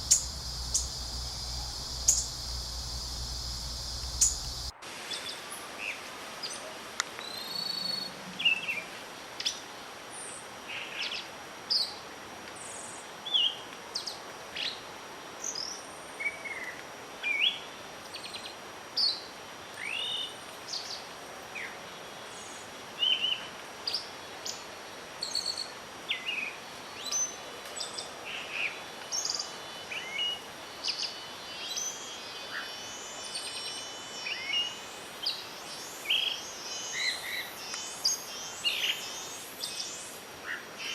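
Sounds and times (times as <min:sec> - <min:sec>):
birds chirping and whistling: 0:00.0 - 0:04.7
wind hiss: 0:00.0 - 0:06.2.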